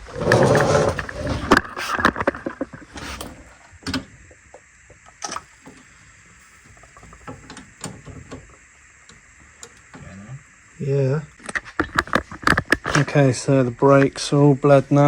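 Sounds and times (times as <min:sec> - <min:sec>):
spanner clicks and knocks: 0:03.8 - 0:05.9.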